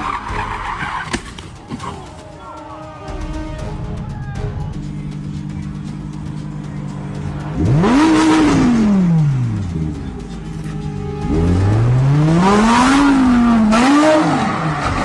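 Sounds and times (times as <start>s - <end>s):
vehicle engine revving: 3.4s - 15.0s.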